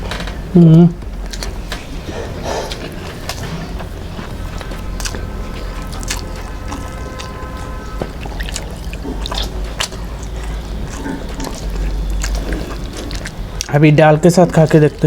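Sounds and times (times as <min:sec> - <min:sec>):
wet chewing: 0:01.0 - 0:15.0.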